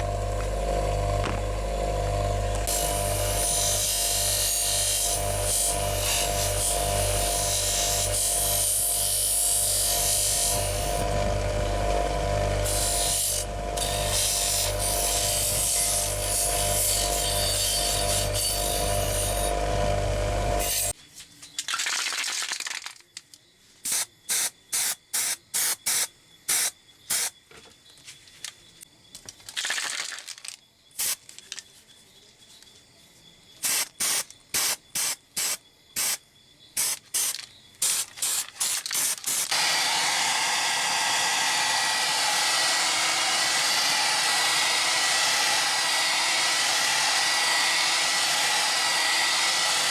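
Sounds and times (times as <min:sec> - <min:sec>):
power tool running: 0:00.0 - 0:21.0, 0:36.8 - 0:49.9
short hissing spray bursts: 0:23.8 - 0:27.3, 0:31.0 - 0:31.2, 0:33.6 - 0:36.2.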